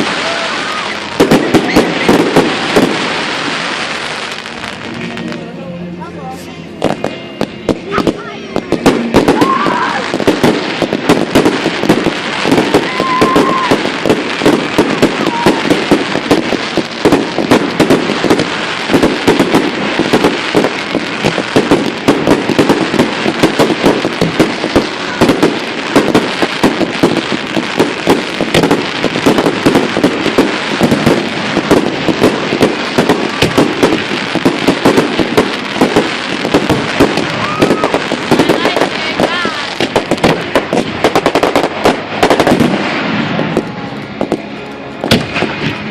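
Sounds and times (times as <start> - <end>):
fireworks crackling and popping: 0.0 - 45.9.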